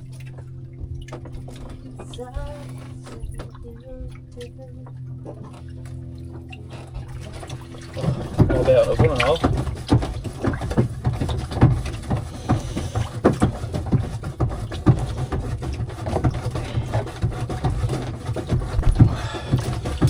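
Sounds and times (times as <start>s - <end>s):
steady low rumble: 0.0s - 13.2s
knocks and clatters on a boat: 0.0s - 20.0s.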